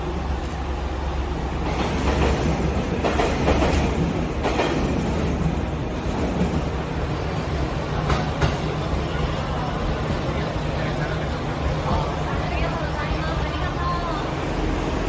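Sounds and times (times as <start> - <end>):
train engine hum: 0.0 - 15.0
wheel and rail noise: 0.0 - 15.0.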